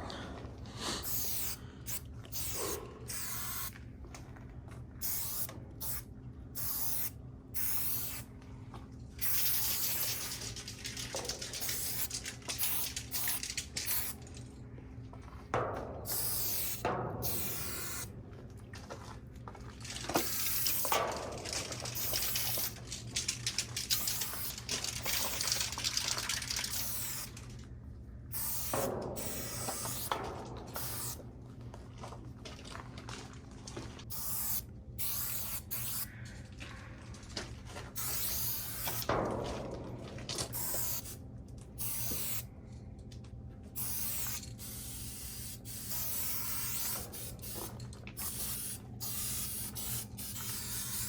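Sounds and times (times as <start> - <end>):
steady low hum: 0.0 - 51.0
spray paint can hissing: 1.0 - 3.7, 5.0 - 6.0, 6.6 - 8.3, 9.2 - 14.2, 16.1 - 18.1, 20.1 - 27.4, 28.3 - 31.2, 34.1 - 36.1, 38.0 - 39.1, 40.5 - 41.2, 41.8 - 42.5, 43.8 - 51.0.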